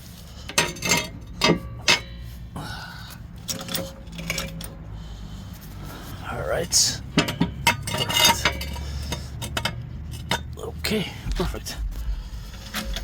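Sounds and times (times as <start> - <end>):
metal clinks of car jack: 0.4 - 2.4, 3.4 - 4.9, 6.6 - 11.0.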